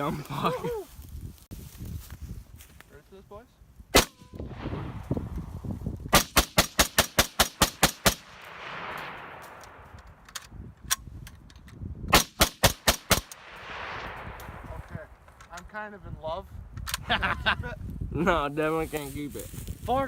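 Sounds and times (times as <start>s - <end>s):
rifle shots: 4.0s - 5.0s, 6.1s - 10.2s, 12.1s - 14.8s.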